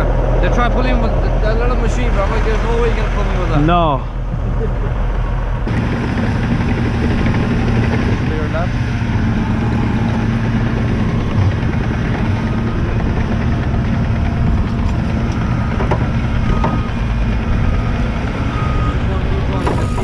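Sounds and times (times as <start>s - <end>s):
truck diesel engine running: 0.0s - 20.0s.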